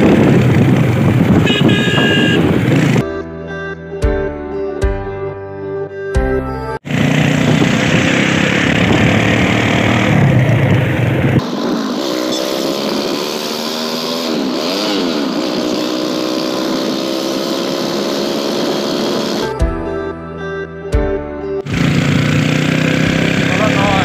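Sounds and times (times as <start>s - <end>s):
motorcycle engine revving: 0.0s - 3.0s, 6.8s - 19.5s, 21.6s - 24.0s
wind rushing: 7.1s - 13.4s.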